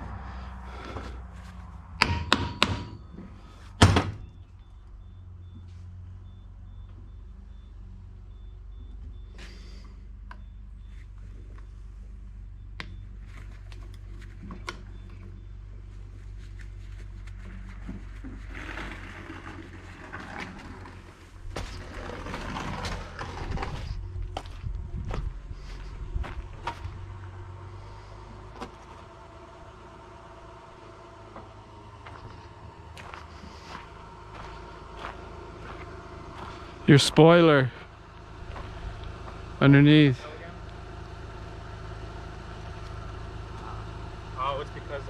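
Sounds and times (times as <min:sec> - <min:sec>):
steady low hum: 0:20.1 - 0:45.0.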